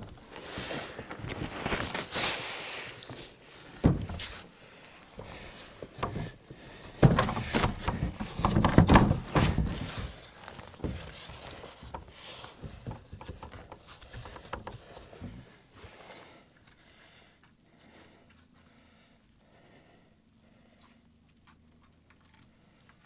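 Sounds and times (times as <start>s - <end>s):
wall panels knocking and thunking: 3.8s - 4.5s, 5.2s - 15.5s.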